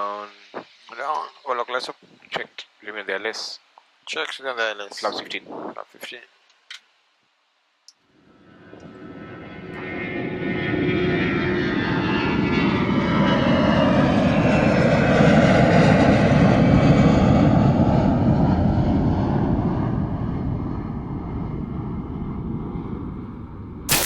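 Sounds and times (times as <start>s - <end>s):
jet airliner passing: 9.0s - 19.8s.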